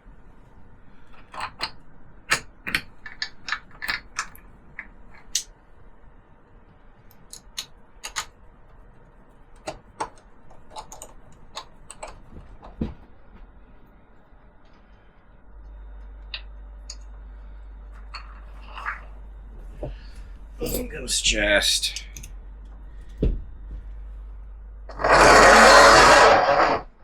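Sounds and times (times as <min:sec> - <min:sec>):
dull low knock: 0:23.1 - 0:24.1.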